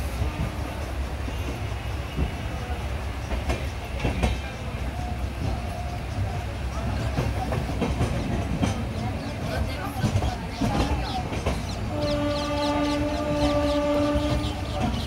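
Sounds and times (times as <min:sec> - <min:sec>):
train wheels rumbling on rails: 0:00.0 - 0:15.0
wheels clicking over rail joints: 0:03.2 - 0:15.0.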